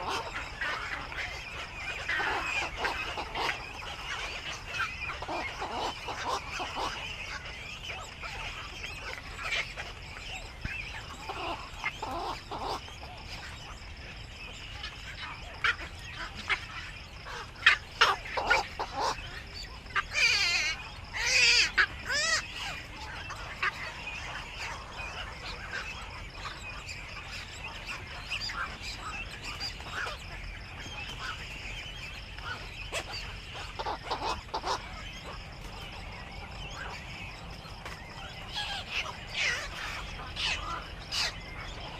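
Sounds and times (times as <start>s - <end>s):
herons squawking: 0.0s - 41.9s.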